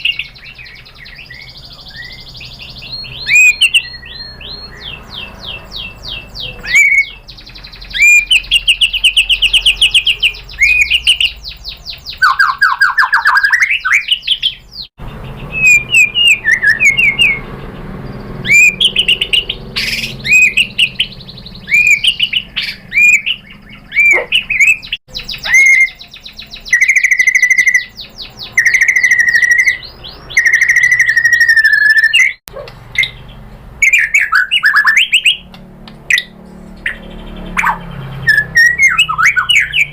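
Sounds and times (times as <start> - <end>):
bird singing trills and whistles: 0.0 - 39.9.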